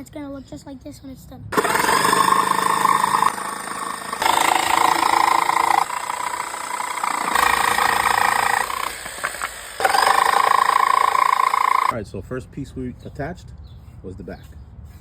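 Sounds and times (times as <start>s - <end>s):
power tool motor running: 1.5s - 11.9s.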